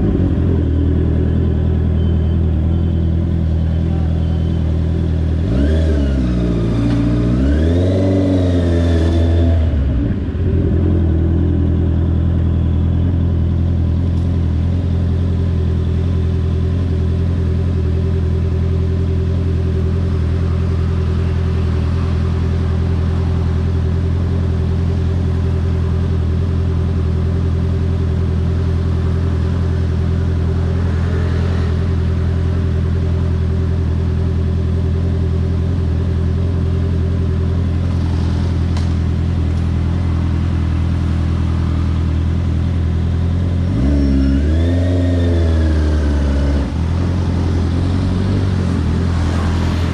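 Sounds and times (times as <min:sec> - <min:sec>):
motorcycle engine revving: 0:00.0 - 0:02.6, 0:03.2 - 0:12.4, 0:13.0 - 0:49.9.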